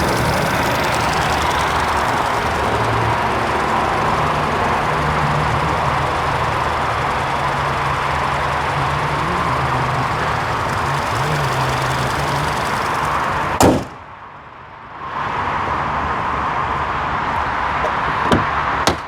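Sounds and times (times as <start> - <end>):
car engine idling: 0.0 - 14.1
loud slam: 13.6 - 14.0.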